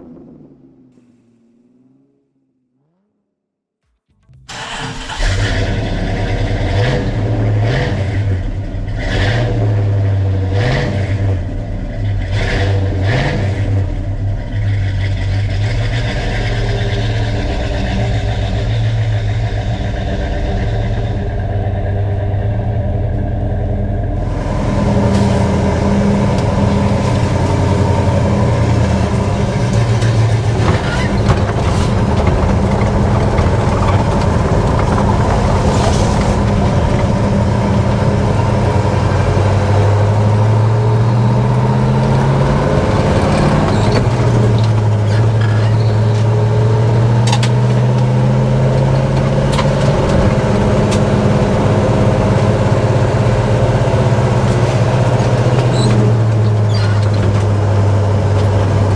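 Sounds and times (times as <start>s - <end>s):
car engine accelerating: 0.0s - 3.2s, 4.4s - 58.9s.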